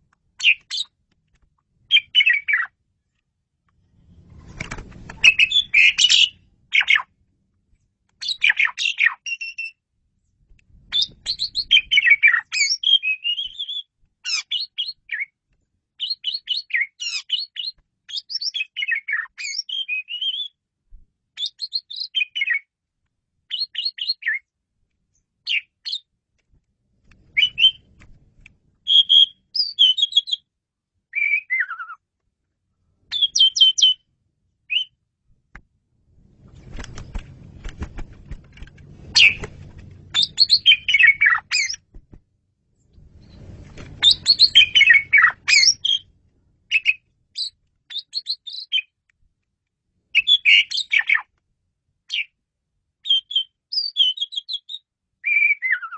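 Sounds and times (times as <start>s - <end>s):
starling chirps and whistles: 0.4s - 0.9s, 1.9s - 2.7s, 5.2s - 7.1s, 10.9s - 15.3s, 16.0s - 20.6s, 21.4s - 22.7s, 27.4s - 27.9s, 28.9s - 30.4s, 31.1s - 32.0s, 33.1s - 34.0s, 39.2s - 39.4s, 40.1s - 41.8s, 44.0s - 46.1s, 46.7s - 48.9s, 50.2s - 51.3s, 53.0s - 55.9s.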